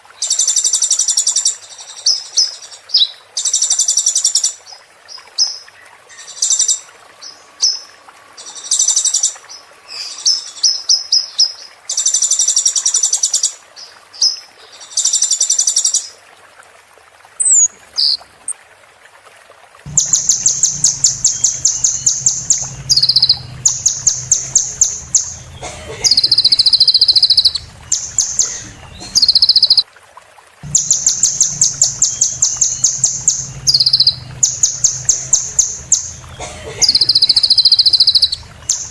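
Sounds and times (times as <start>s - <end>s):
steady low hum: 19.9s - 29.3s, 30.6s - 37.4s
bird singing fast high trills: 19.9s - 29.8s, 30.6s - 38.9s.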